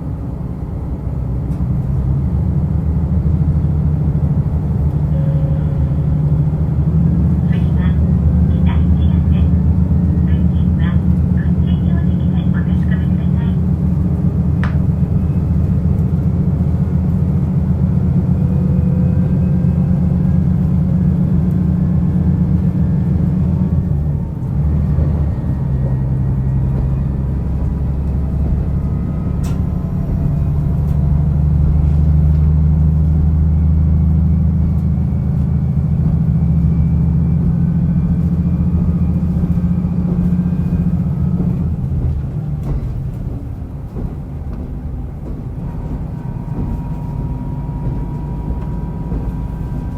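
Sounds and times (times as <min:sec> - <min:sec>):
railcar engine pulling: 0:00.0 - 0:49.9.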